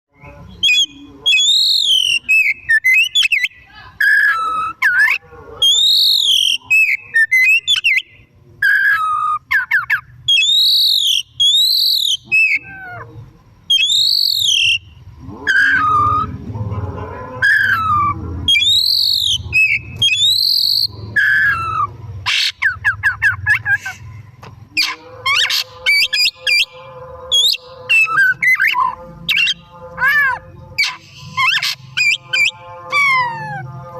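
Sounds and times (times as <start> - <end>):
songbird whistling: 0.2 - 12.8, 13.7 - 14.9, 17.4 - 24.0, 24.8 - 33.7.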